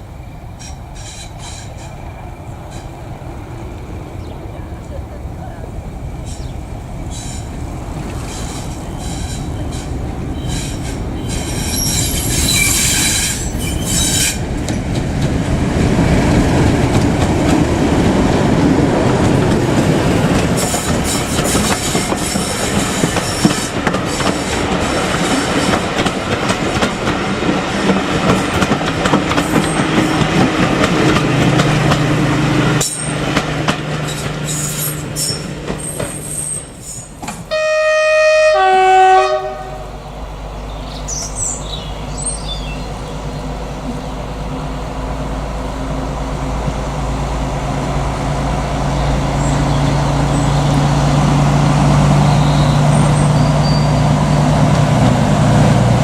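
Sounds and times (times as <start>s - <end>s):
train wheel and rail rumble: 0.0s - 56.0s
wheels squealing: 6.2s - 14.8s, 20.2s - 25.9s, 34.0s - 37.3s, 48.9s - 54.8s
two-tone train horn: 37.5s - 40.0s.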